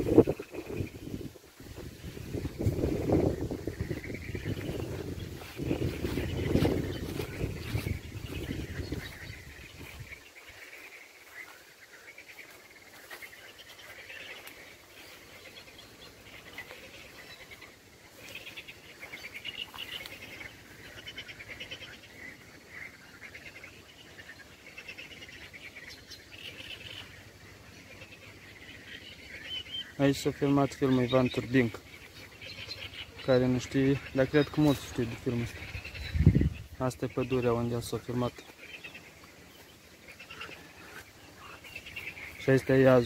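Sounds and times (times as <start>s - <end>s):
microphone rumble: 0.0s - 10.2s, 35.6s - 36.8s
small birds chirping: 0.0s - 43.0s.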